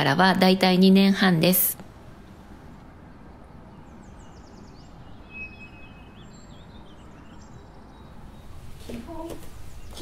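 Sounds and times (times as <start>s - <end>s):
small birds chirping: 2.5s - 10.0s
whistled bird note: 5.1s - 6.9s.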